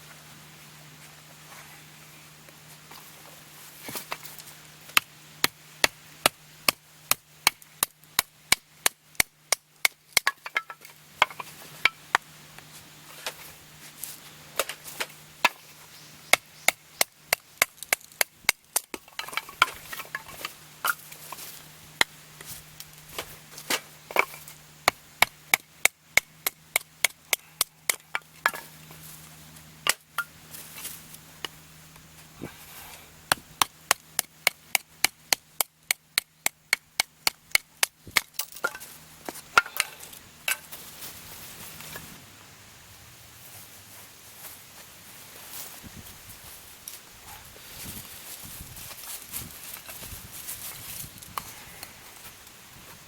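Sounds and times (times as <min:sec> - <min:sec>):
wood being chopped: 0:04.9 - 0:12.3, 0:33.3 - 0:40.7.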